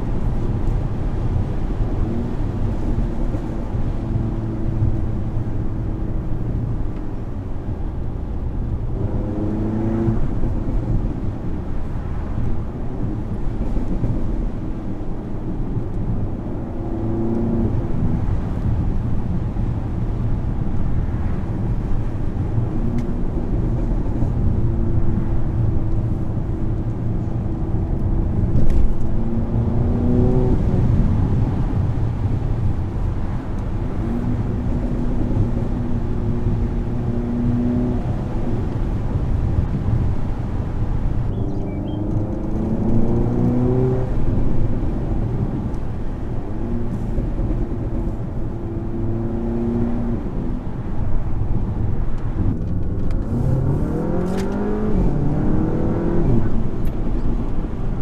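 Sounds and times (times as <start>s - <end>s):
car engine revving: 28.3s - 50.8s, 52.4s - 57.8s.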